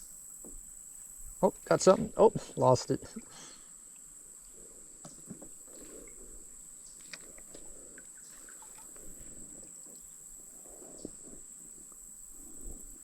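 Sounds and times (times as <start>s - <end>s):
insects chirring: 0.0s - 13.0s
faint small ticks: 5.0s - 13.0s.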